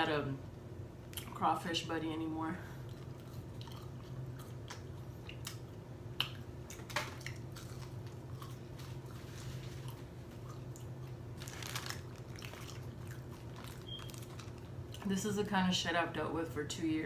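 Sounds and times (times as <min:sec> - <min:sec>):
steady low hum: 0:00.0 - 0:17.0
chewing french fries: 0:02.7 - 0:15.2.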